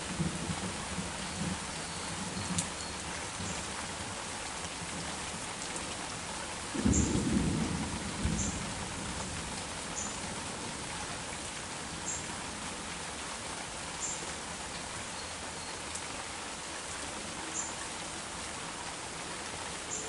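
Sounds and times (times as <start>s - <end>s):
low rumble of thunder: 0.0s - 2.8s, 6.7s - 12.8s
heavy rain falling: 0.0s - 20.0s.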